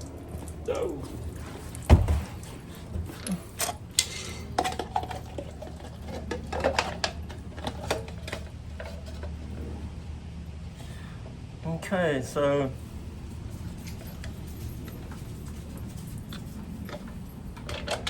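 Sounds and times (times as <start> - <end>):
hard objects thumping down: 1.8 - 3.1
clinks and knocks: 3.0 - 9.4, 13.6 - 18.0.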